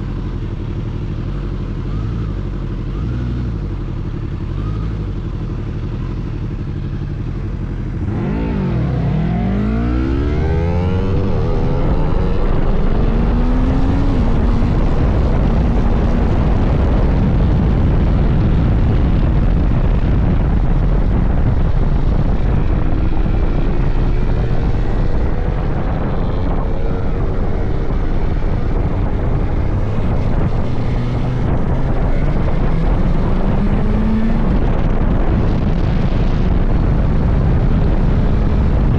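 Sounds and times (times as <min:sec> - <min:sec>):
heavy wind noise: 0:00.0 - 0:38.9
motorcycle engine accelerating: 0:00.0 - 0:38.9.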